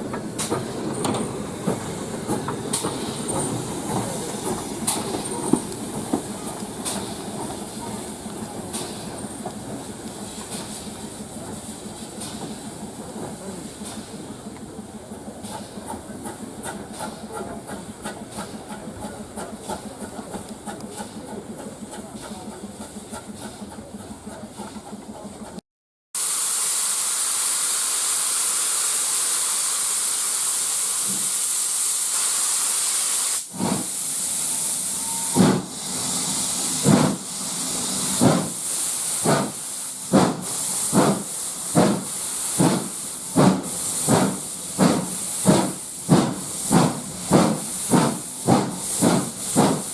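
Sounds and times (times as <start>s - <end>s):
steam hissing: 0.0s - 23.8s, 26.2s - 49.9s
steam locomotive exhaust chuffs: 0.0s - 25.6s, 26.2s - 49.9s
train wheels clattering: 0.0s - 25.6s, 35.0s - 35.7s, 36.7s - 37.3s, 38.2s - 49.9s.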